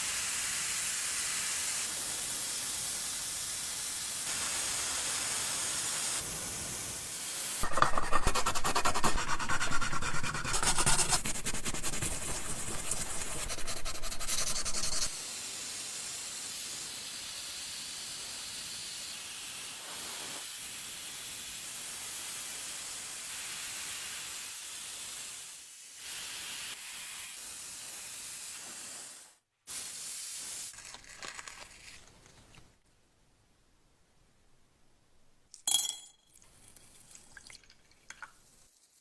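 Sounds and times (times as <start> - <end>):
spraying jet hissing: 7.6 - 15.2.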